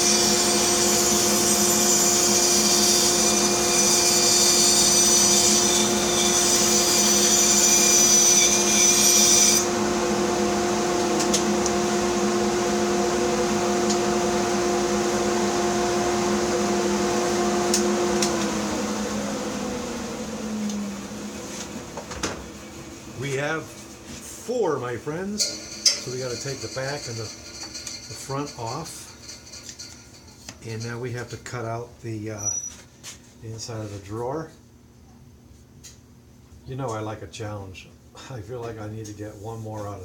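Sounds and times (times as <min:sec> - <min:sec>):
bandsaw cutting wood: 0:00.0 - 0:19.0, 0:25.4 - 0:29.0
bandsaw motor hum: 0:00.0 - 0:31.4.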